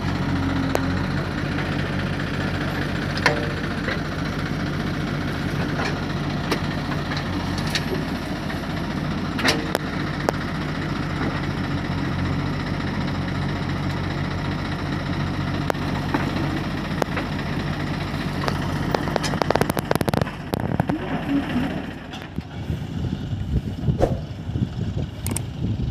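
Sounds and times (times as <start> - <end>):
diesel engines running: 0.0 - 25.9.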